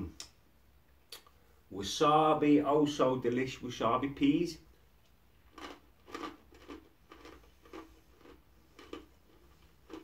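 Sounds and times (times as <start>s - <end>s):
person chewing crunchy peas: 5.4s - 10.0s.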